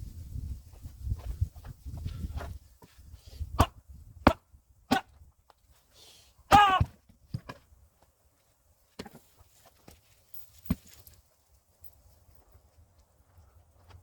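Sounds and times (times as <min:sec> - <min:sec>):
axe chopping wood: 0:03.6 - 0:05.2, 0:06.5 - 0:07.6
voice-like cry: 0:06.5 - 0:06.9.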